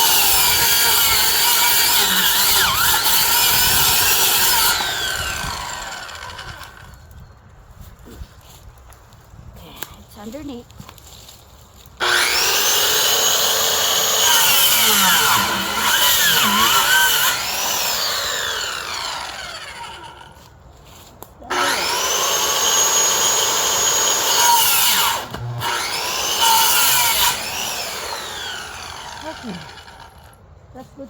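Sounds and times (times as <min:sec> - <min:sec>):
electric saw cutting branches: 0:00.0 - 0:07.0, 0:12.0 - 0:20.4, 0:21.5 - 0:30.4.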